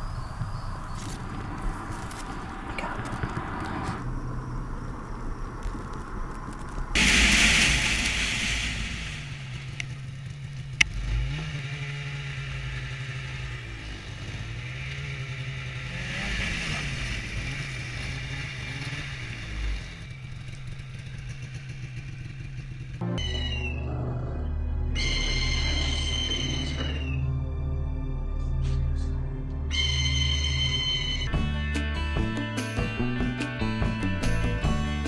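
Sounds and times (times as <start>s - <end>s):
vehicle engine revving: 0.0s - 23.1s.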